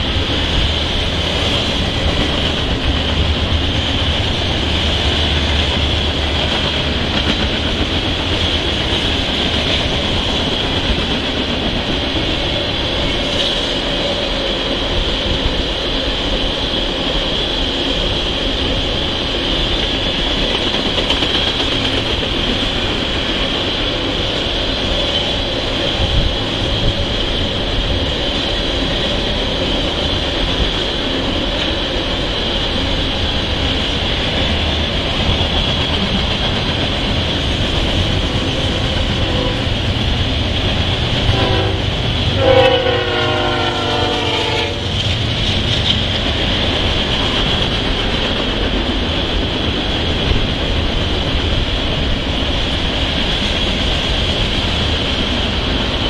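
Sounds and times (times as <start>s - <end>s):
freight cars rolling on rails: 0.0s - 56.0s
diesel locomotive horn: 38.4s - 40.0s, 40.9s - 45.0s.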